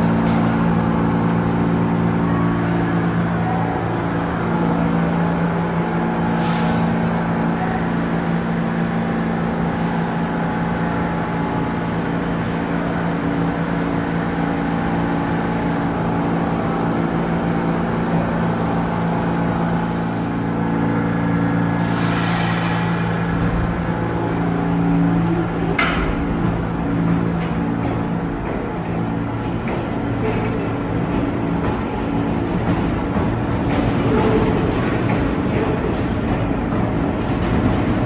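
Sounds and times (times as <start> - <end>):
subway train humming: 0.0 - 38.0
air hiss: 6.3 - 6.9, 21.8 - 23.4
air release: 6.4 - 6.9, 21.8 - 23.4.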